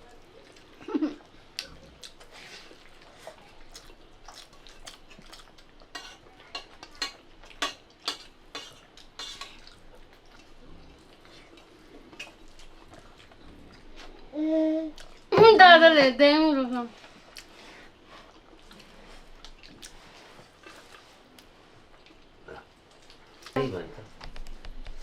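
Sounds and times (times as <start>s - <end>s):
dishes and utensils clinking: 5.9s - 9.7s.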